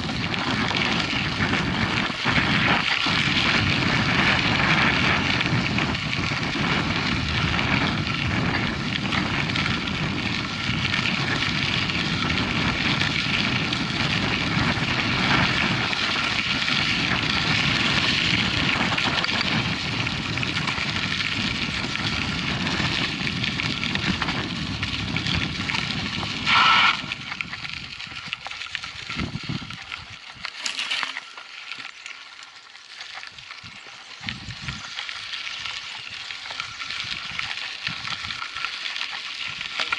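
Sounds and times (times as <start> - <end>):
wind buffeting microphone: 0.0 - 30.5, 33.2 - 39.9
tyres rumbling on dirt trail: 0.0 - 39.9
short loud squeal: 26.5 - 27.1.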